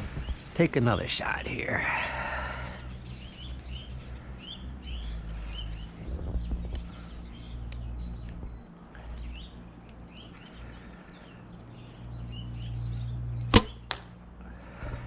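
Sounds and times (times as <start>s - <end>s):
small birds chirping: 0.0s - 15.0s
bow string snap: 13.4s - 14.2s.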